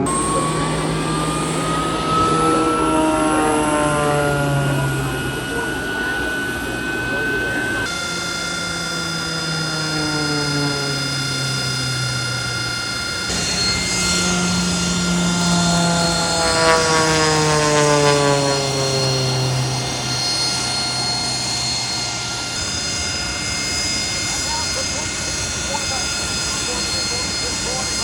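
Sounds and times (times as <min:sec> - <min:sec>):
engine whine: 0:00.0 - 0:28.0
plane flying past: 0:00.0 - 0:28.0.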